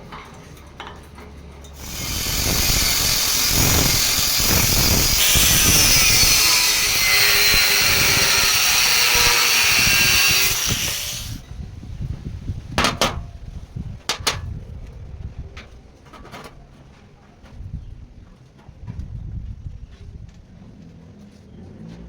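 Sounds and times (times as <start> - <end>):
power tool cutting with a whine: 1.8 - 11.4.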